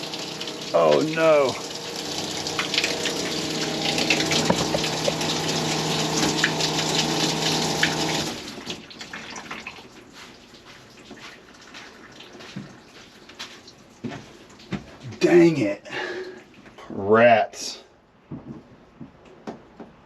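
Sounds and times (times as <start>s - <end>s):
electric water pump humming: 0.0s - 9.9s
water gushing: 0.0s - 12.9s.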